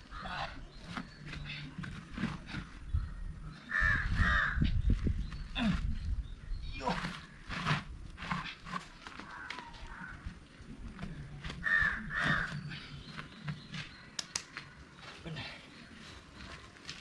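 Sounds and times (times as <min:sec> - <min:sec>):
bird cawing: 0:03.6 - 0:04.7, 0:09.2 - 0:10.4, 0:11.5 - 0:13.0.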